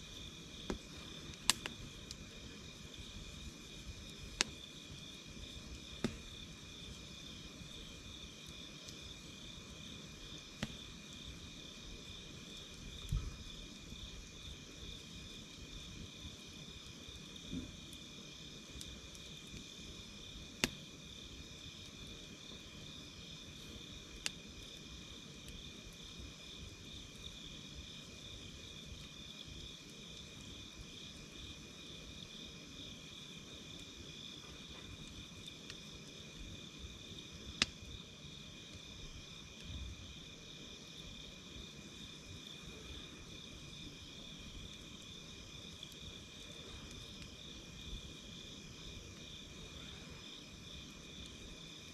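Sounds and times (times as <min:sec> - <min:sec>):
campfire crackling and popping: 0:00.0 - 0:51.9
night insects chirping: 0:00.0 - 0:51.9.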